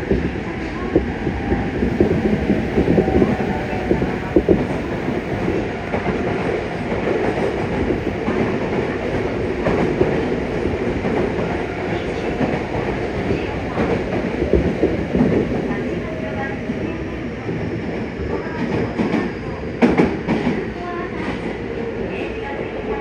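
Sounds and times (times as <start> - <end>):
rail joints clacking: 0.0 - 17.1
train wheels rumbling on rail: 0.0 - 23.0.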